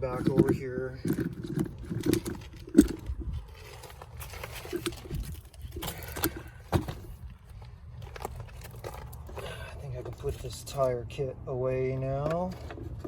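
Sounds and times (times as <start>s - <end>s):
rustling: 0.0s - 10.9s.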